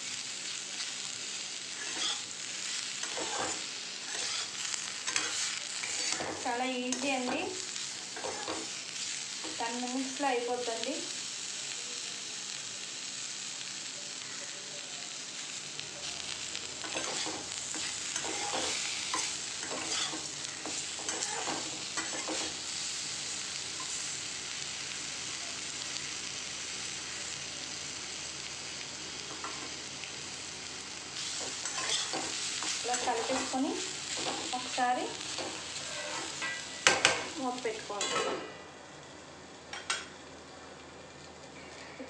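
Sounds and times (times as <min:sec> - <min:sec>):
banana slices sizzling in oil: 0:00.0 - 0:42.0
spatula scraping metal pan: 0:16.9 - 0:20.2, 0:35.8 - 0:36.6.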